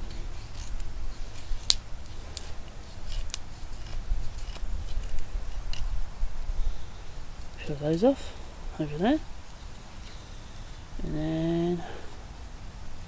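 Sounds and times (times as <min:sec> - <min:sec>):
knife scraping wooden stick: 0:00.0 - 0:05.9.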